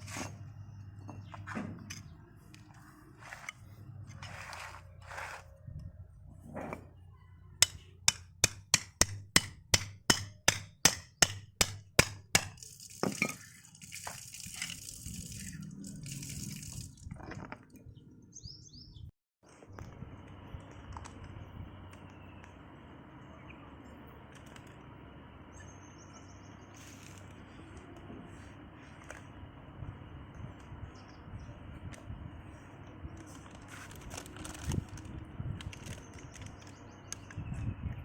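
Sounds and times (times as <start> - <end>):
scraping and handling sounds: 1.1 - 5.7
hammer striking metal: 7.6 - 12.6.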